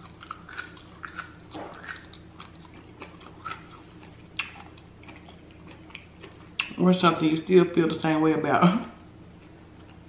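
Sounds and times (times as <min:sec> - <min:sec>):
person chewing: 0:00.0 - 0:06.8.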